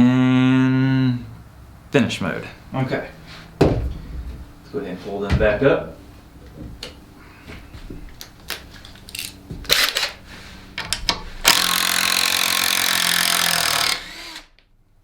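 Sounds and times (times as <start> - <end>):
impact driver running: 9.7 - 10.2, 11.4 - 14.6.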